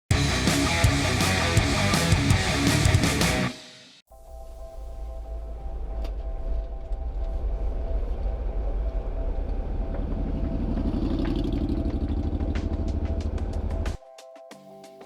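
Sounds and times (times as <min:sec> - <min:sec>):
car engine running while driving: 0:08.6 - 0:13.9.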